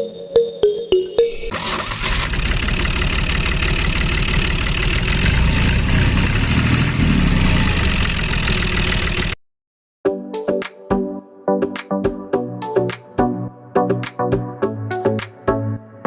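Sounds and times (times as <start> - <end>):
tractor engine idling: 1.5 - 9.4.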